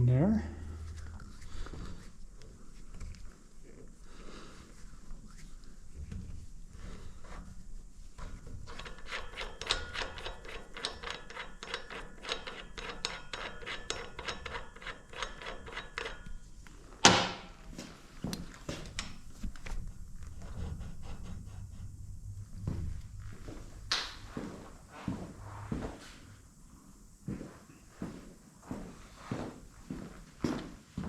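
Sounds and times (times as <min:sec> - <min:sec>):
ratchet wrench clicking: 0:08.6 - 0:16.4.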